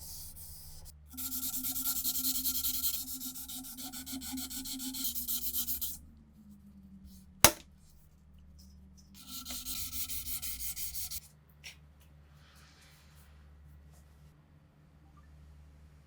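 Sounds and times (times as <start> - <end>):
hand rubbing on metal: 0.0 - 6.0, 9.2 - 11.2
sharp knock: 7.4 - 7.6.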